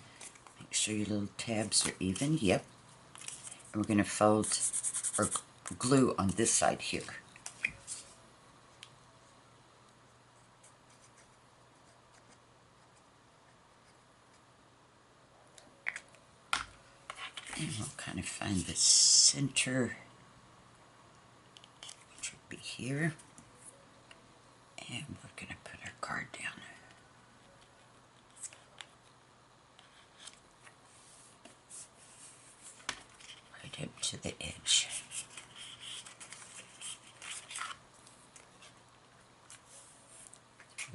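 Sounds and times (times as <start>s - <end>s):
paper rustling: 34.8s - 38.8s.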